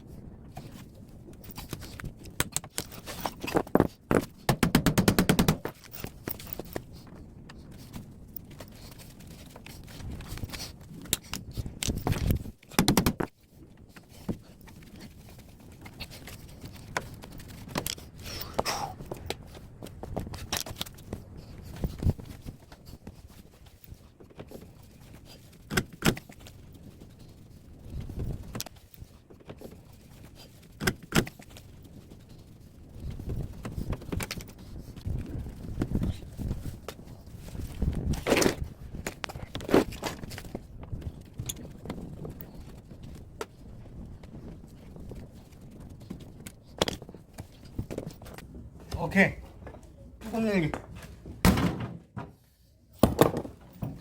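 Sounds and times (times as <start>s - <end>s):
metal clinks and knocks: 1.3s - 6.9s.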